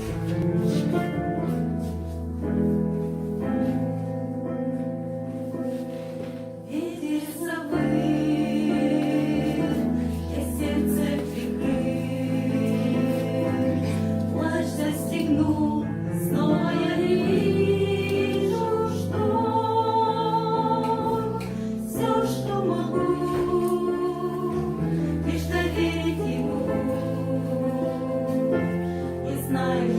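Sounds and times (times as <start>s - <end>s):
musical accompaniment: 0.0s - 29.9s
choir singing held chords: 6.7s - 29.9s.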